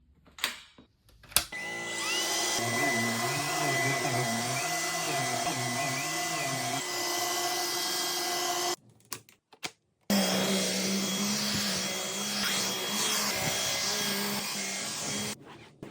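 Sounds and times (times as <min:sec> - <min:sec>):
vacuum cleaner motor whine: 0:01.5 - 0:08.8, 0:10.1 - 0:15.4.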